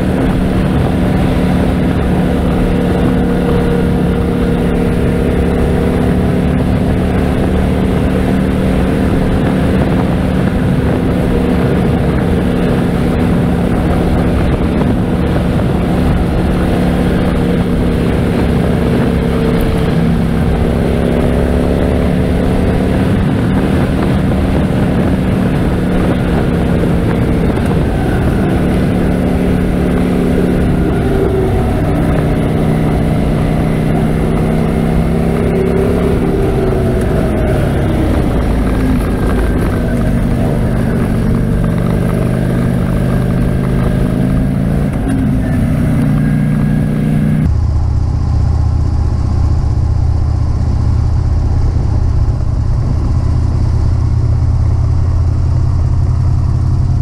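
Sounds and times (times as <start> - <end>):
motorcycle engine running: 0.0 - 57.0
wind rushing: 0.0 - 57.0.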